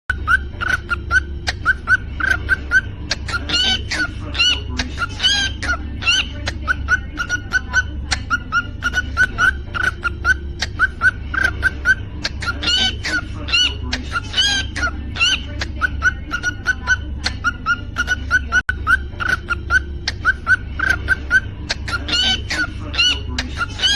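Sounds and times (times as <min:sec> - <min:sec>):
cockatiel chirping: 0:00.1 - 0:23.9
low steady hum: 0:00.1 - 0:23.9.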